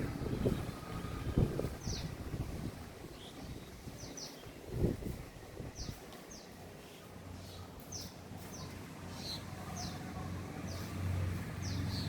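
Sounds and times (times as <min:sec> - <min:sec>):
low motor hum: 0:00.0 - 0:03.1.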